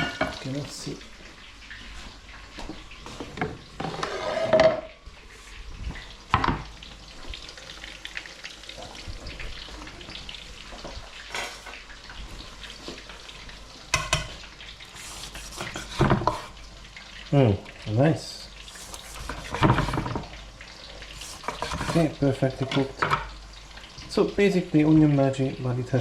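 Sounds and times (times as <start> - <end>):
food sizzling in hot oil: 0.0 - 26.0
utensil scraping a pan: 3.8 - 4.9, 11.3 - 11.8, 14.0 - 16.6, 18.6 - 20.3, 21.1 - 22.8.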